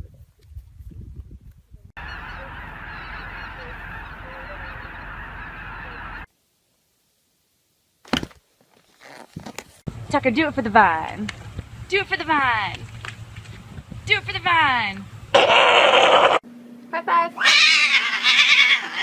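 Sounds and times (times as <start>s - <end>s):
many animal calls: 2.0s - 6.3s, 17.4s - 19.0s.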